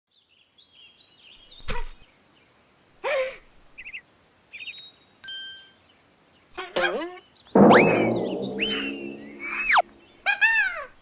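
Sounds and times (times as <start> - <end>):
metallic ding: 6.8 - 9.9.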